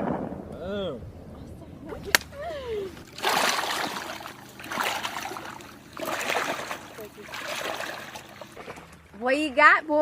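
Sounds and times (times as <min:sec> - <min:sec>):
water splashing: 0:01.8 - 0:09.6.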